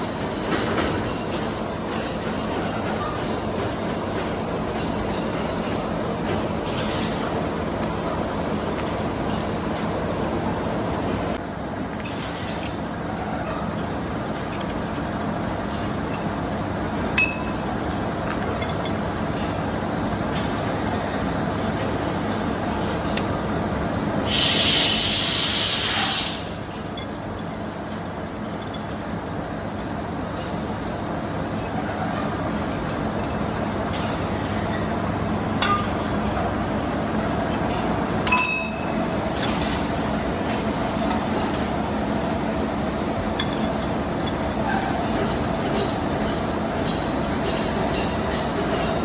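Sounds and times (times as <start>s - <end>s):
loud hiss: 24.2s - 26.6s.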